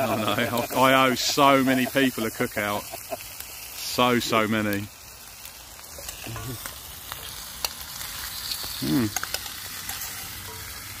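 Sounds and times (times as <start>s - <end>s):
bacon and onions sizzling: 0.0s - 11.0s
spoon stirring onions: 8.6s - 11.0s.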